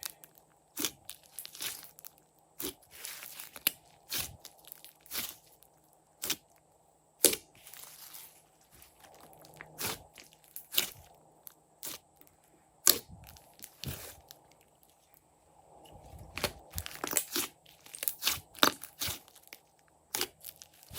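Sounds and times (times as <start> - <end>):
sticky slime stretching: 0.0 - 5.6, 16.1 - 20.9.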